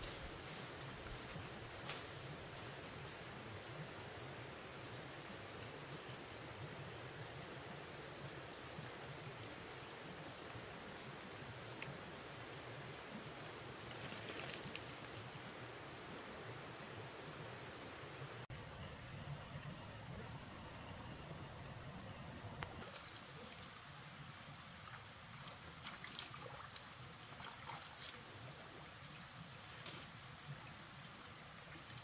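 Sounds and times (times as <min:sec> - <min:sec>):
outdoor background hiss: 0:00.0 - 0:32.0
rustling: 0:13.8 - 0:15.2.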